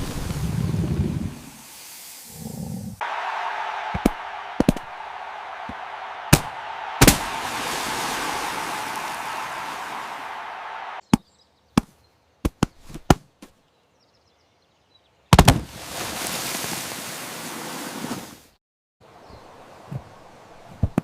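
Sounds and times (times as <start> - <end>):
sharp cracks: 3.9 - 11.2, 15.3 - 15.7.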